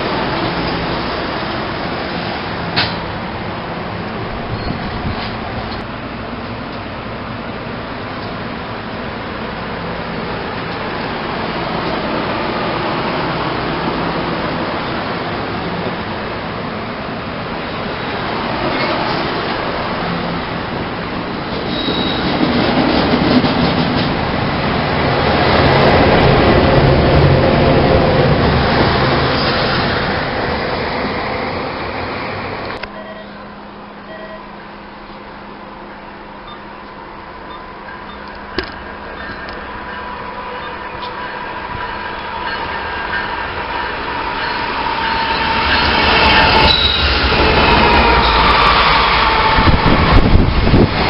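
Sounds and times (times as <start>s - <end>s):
train wheels rumbling on rail: 0.0s - 51.0s
high wheel squeal: 4.5s - 5.0s, 21.6s - 22.3s, 37.5s - 50.3s.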